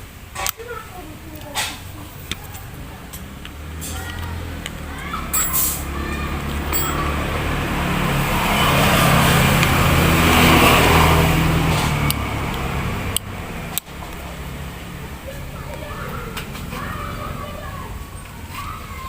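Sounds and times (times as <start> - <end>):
vehicle passing by: 1.0 - 19.0
sharp clicks: 11.8 - 14.2.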